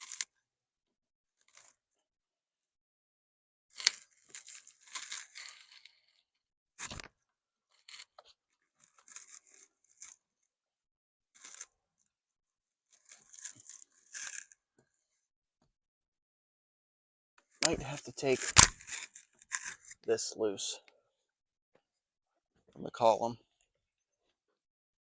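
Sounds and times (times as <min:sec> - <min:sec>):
plastic parts scraping and clicking: 0:00.0 - 0:00.3, 0:03.7 - 0:06.0, 0:07.8 - 0:10.2, 0:11.4 - 0:11.7, 0:12.9 - 0:14.6, 0:17.6 - 0:20.0.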